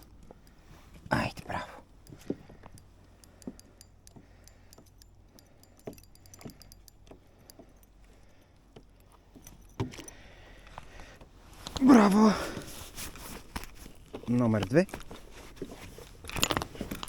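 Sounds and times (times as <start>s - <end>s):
light metallic clicking and clinking: 0.0s - 10.9s.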